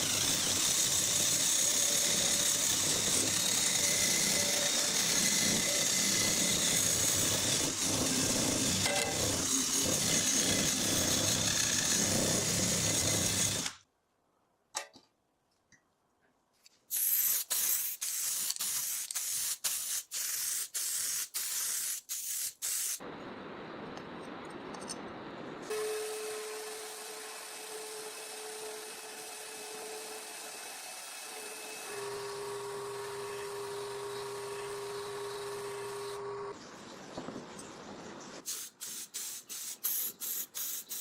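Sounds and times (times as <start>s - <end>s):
handheld power tool on metal: 0.0s - 13.8s, 16.9s - 23.0s, 25.7s - 36.5s.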